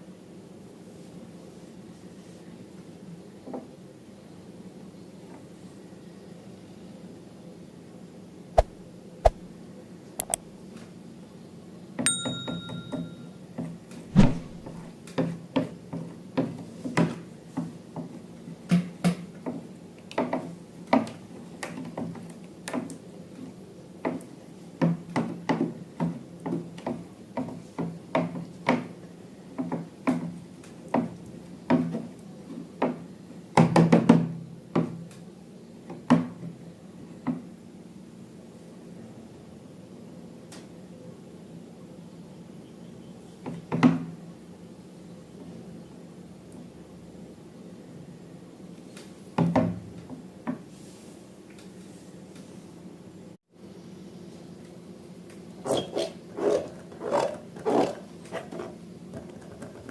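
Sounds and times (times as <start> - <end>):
sharp clicks: 10.2 - 10.4
high ding: 12.1 - 13.4.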